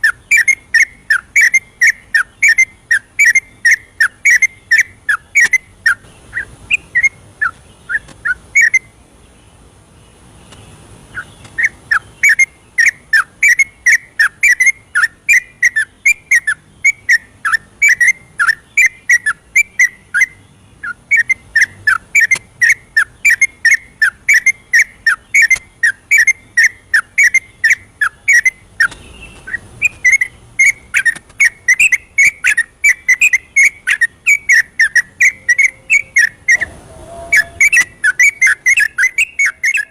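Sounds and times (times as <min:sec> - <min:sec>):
bird singing bubbly whistled notes: 0:00.0 - 0:07.2, 0:21.1 - 0:39.9.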